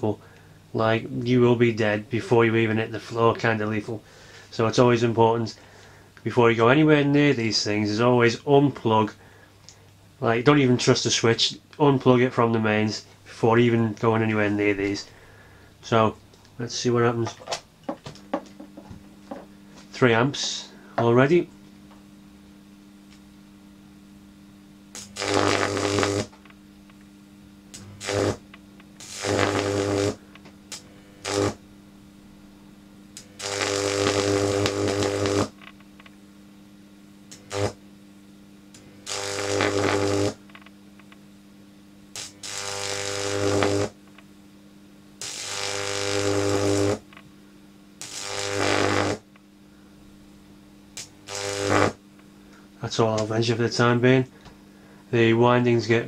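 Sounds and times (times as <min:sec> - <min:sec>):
electric arc buzzing and crackling: 0:00.0 - 0:56.0
transformer mains hum: 0:00.0 - 0:56.0.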